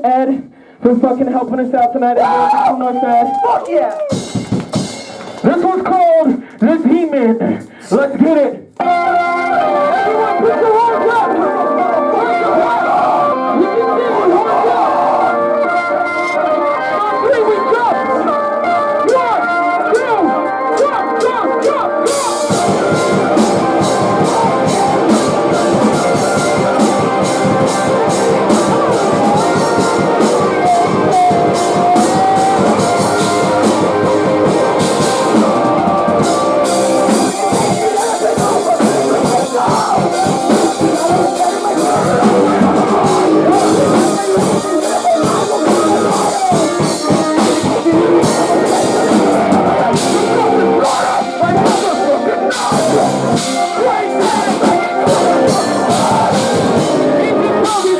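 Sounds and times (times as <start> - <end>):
distorted guitars: 0.0 - 57.9
keyboard: 0.0 - 57.9
pounding drum kit: 4.0 - 6.3, 21.6 - 57.9
person singing: 8.8 - 57.9.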